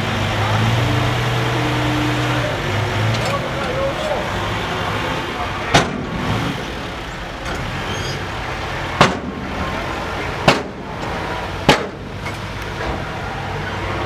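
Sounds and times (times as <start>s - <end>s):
dump truck engine running: 0.0s - 14.0s
sharp bangs: 5.7s - 6.6s, 8.9s - 9.7s, 10.4s - 11.0s, 11.6s - 13.1s.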